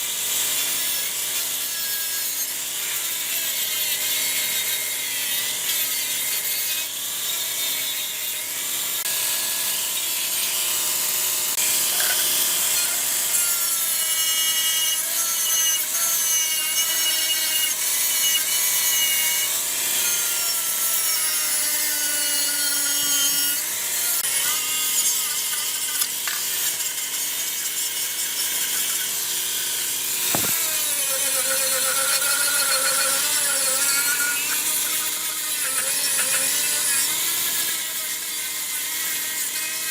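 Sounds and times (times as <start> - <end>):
tool rasping on metal: 0.0 - 39.9
sharp knock: 30.3 - 30.6.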